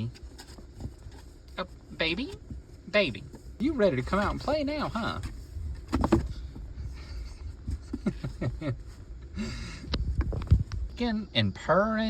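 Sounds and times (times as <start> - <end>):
rustling and handling knocks: 0.0 - 6.8.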